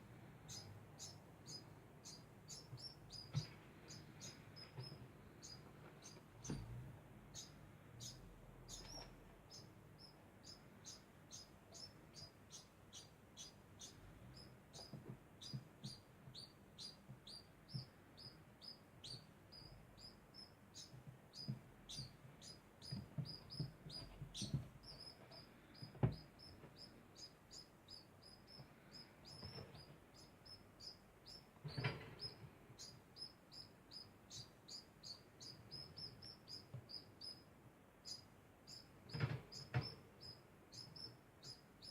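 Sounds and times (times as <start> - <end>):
rodent chirping: 0.5 - 6.6, 7.3 - 41.9
faint knocks and rustles: 2.7 - 9.4, 14.2 - 18.0, 20.8 - 27.3, 28.6 - 30.4, 31.6 - 32.9, 39.0 - 40.3.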